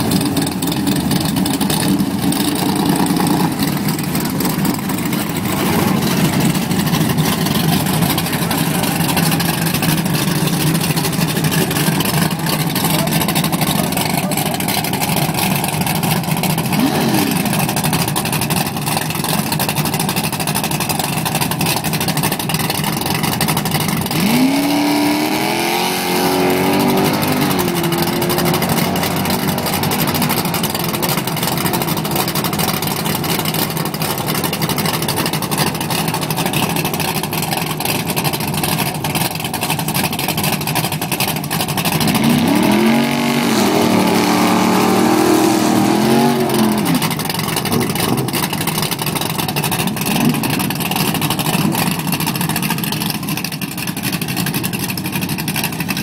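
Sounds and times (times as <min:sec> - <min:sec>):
engine revving: 0:00.0 - 0:18.0, 0:23.5 - 0:35.6, 0:41.8 - 0:51.9
race car engines idling: 0:00.0 - 0:56.0.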